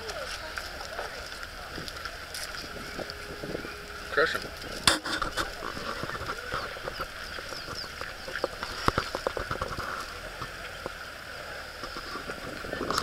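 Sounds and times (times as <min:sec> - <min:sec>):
high background hum: 0:00.0 - 0:12.9
small birds chirping: 0:02.1 - 0:09.2.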